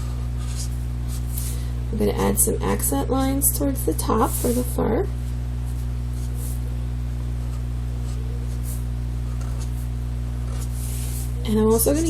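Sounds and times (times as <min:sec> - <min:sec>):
marker scratching on paper: 0:00.0 - 0:01.5, 0:07.4 - 0:11.4
steady low hum: 0:00.0 - 0:12.0.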